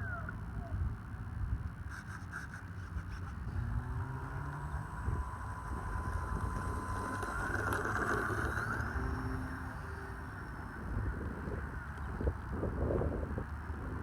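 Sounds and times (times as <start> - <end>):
model plane motor whine: 1.9 - 14.0
wind buffeting microphone: 3.0 - 14.0.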